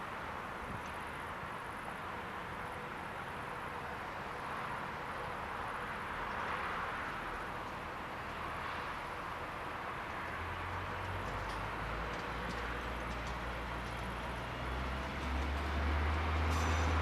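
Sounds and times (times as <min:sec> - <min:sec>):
train rolling through station: 0:00.0 - 0:17.0.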